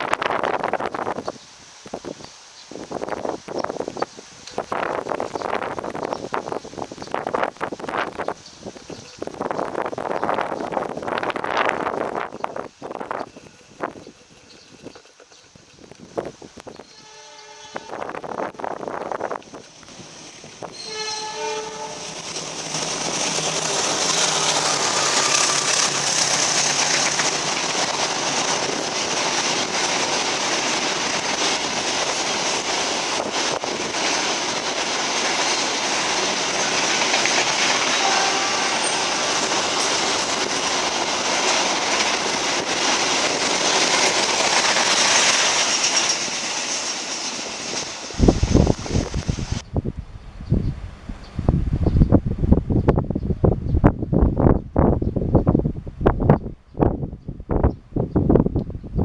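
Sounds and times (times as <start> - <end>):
train wheels rushing on rails: 0.0 - 49.6
train horn: 16.8 - 18.4, 20.7 - 22.2, 24.3 - 26.0, 37.8 - 39.3.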